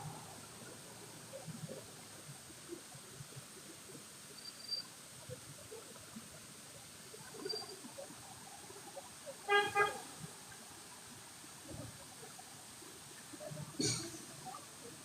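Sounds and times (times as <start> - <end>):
vehicle horn toots: 9.5 - 10.0.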